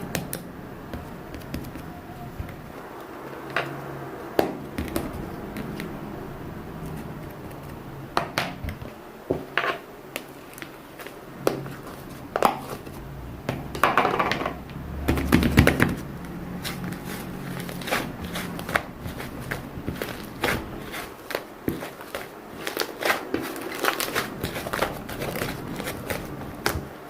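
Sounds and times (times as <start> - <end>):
crinkling: 15.1 - 27.0
rustling: 15.2 - 27.0.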